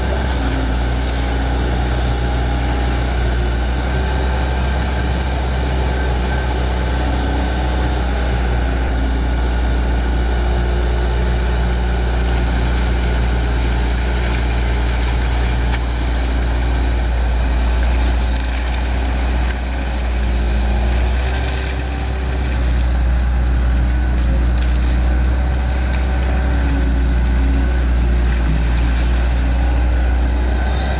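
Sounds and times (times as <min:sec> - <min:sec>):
diesel engine droning: 0:00.0 - 0:30.9.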